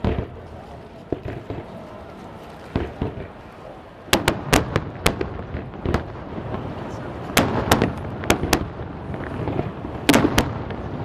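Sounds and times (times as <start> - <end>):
fireworks bang: 0.0 - 1.9, 2.7 - 3.4, 4.1 - 11.0
dull fireworks booms: 0.0 - 11.0
sharp fireworks cracks: 0.0 - 11.0.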